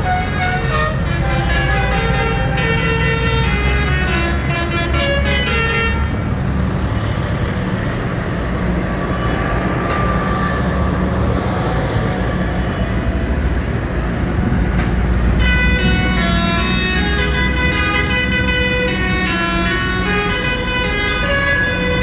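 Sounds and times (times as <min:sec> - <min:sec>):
horn tooting: 0:00.0 - 0:06.3, 0:15.4 - 0:22.0
diesel engines rumbling: 0:00.0 - 0:22.0.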